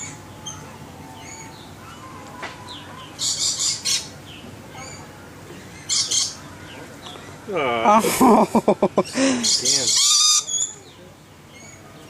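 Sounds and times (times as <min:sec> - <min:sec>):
bird screeching: 0:09.4 - 0:10.8.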